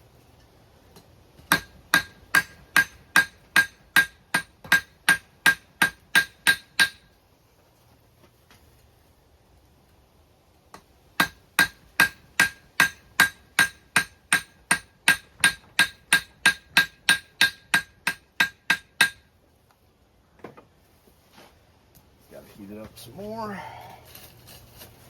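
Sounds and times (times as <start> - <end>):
hammer striking steel on anvil: 1.5 - 7.1, 11.2 - 19.3.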